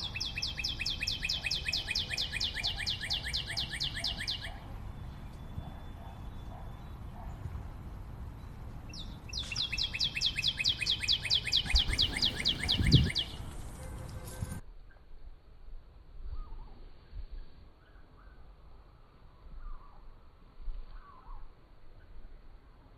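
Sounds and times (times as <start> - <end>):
bird trilling high chirps: 0.0 - 6.5, 9.0 - 13.6.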